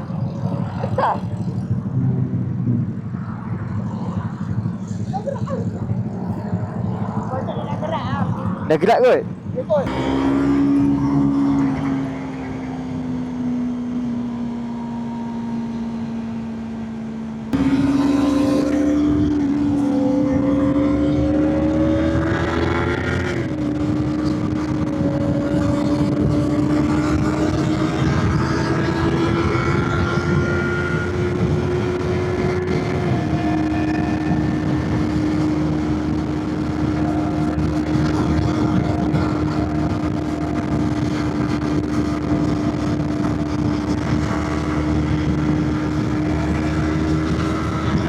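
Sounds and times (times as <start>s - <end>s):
motorcycle engine accelerating: 0.0s - 48.0s.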